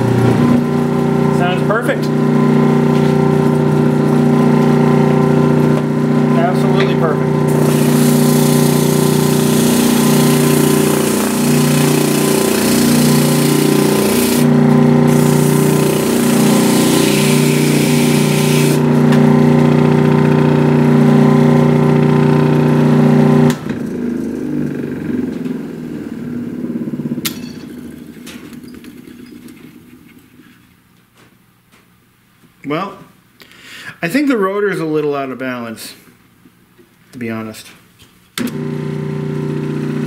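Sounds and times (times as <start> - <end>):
drill press motor humming: 0.0 - 25.4, 38.4 - 40.0.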